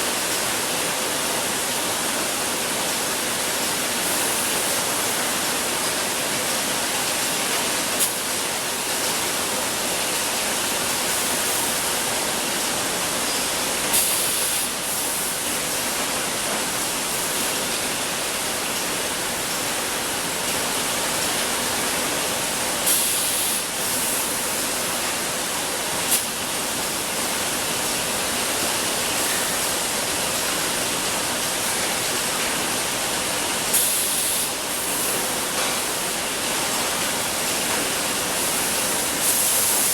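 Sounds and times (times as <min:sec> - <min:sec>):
production line machinery hissing: 0:13.3 - 0:16.0, 0:22.8 - 0:25.0, 0:33.7 - 0:36.1, 0:38.2 - 0:39.9.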